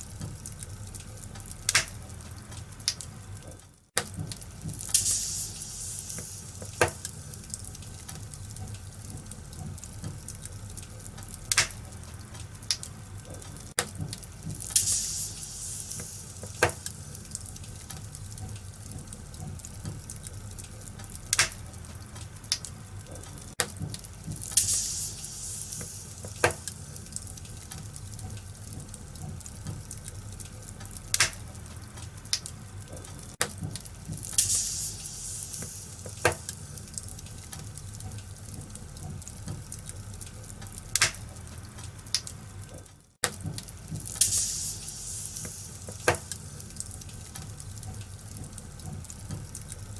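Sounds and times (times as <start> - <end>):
wood fire crackling: 0.0 - 49.9
fire hissing surge: 4.8 - 7.7, 14.6 - 17.6, 24.4 - 27.6, 34.2 - 37.2, 44.0 - 46.9.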